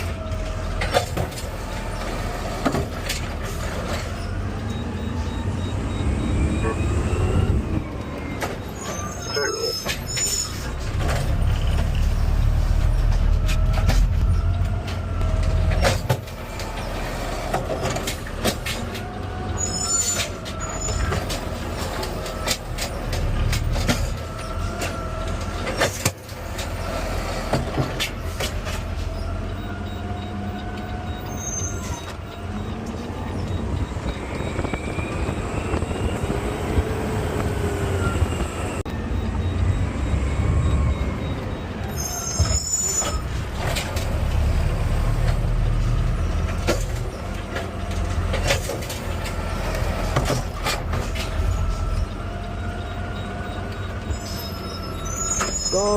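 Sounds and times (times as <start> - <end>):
truck engine rumble: 0.0 - 55.9
clanks and rattles: 20.0 - 30.0, 42.4 - 52.2
whining tones: 28.6 - 55.9.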